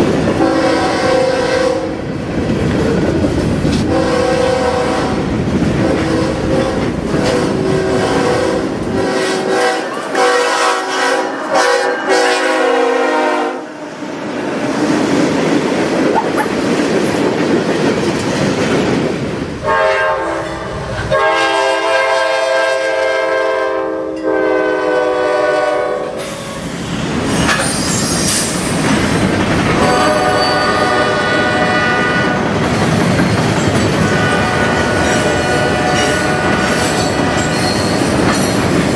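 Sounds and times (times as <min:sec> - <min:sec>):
passing train rumble: 0:00.0 - 0:38.9
locomotive air horn blasts: 0:00.4 - 0:02.0, 0:03.9 - 0:13.8, 0:19.6 - 0:26.4, 0:29.8 - 0:32.5, 0:34.0 - 0:37.4.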